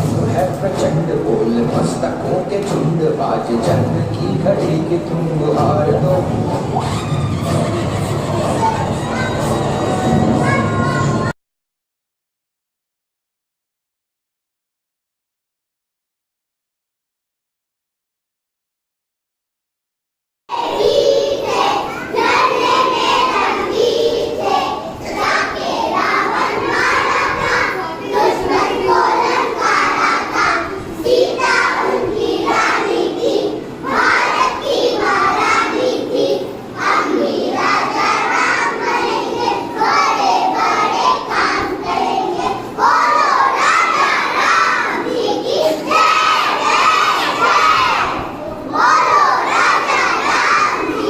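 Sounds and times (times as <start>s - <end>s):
young children's voices: 8.3s - 11.3s, 20.5s - 51.0s.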